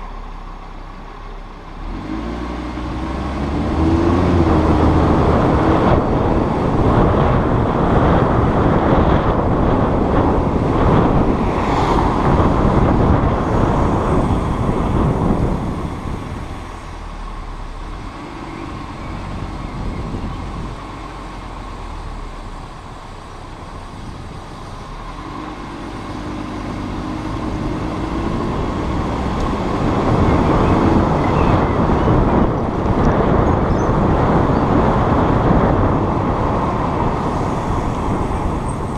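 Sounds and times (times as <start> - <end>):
car road and engine noise: 0.0 - 38.9.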